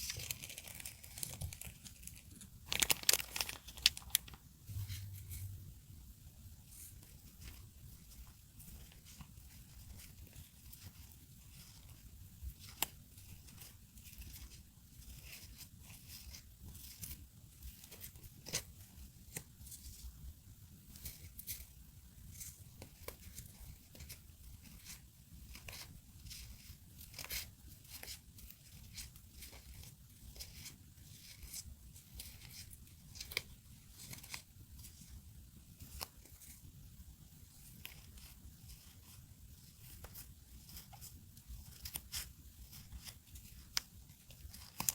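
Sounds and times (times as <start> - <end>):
paper and tape rustling: 0.0 - 5.5, 37.6 - 44.9.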